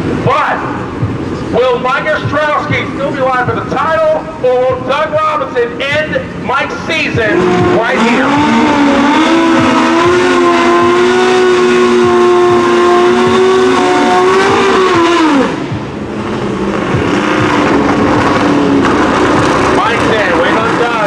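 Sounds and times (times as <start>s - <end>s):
motorcycle engines revving: 0.0s - 21.0s
tyres spinning in burnout: 5.8s - 21.0s.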